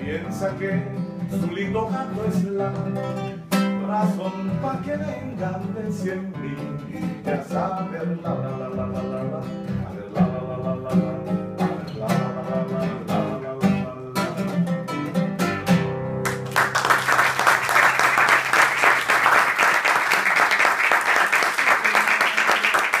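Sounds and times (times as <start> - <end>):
acoustic guitar playing: 0.0 - 19.4
audience applause: 16.2 - 23.0.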